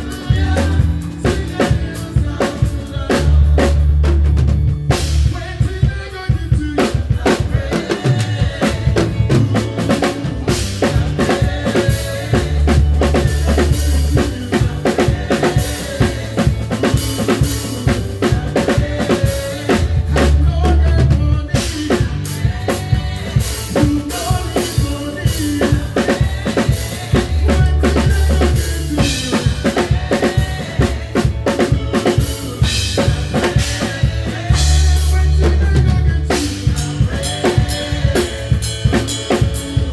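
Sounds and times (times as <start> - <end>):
drum kit: 0.0 - 39.9
live band playing: 0.0 - 39.9.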